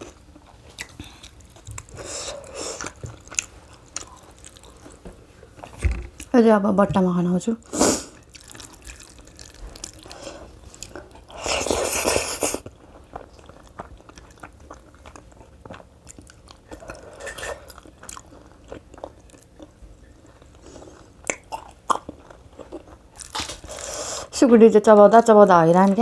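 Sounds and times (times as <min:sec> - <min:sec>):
person chewing and crunching: 0:00.0 - 0:05.0, 0:08.0 - 0:24.2.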